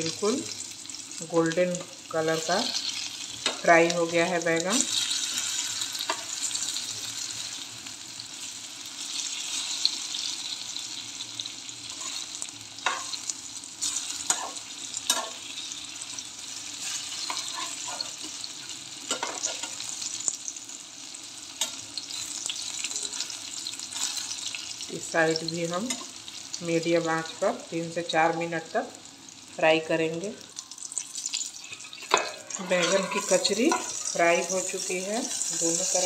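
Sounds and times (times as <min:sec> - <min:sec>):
food sizzling in oil: 0:00.0 - 0:36.0
metal spatula scraping pan: 0:11.9 - 0:13.2, 0:16.8 - 0:18.4, 0:31.6 - 0:34.6.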